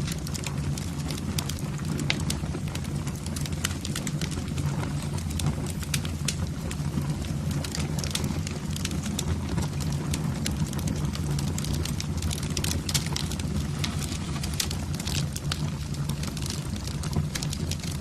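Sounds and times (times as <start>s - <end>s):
fire crackling and popping: 0.0s - 18.0s
low fire rumble: 0.0s - 18.0s.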